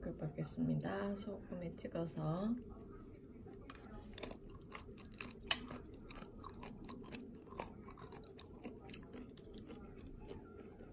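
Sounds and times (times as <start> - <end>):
person chewing mouth clicks: 4.2 - 10.8.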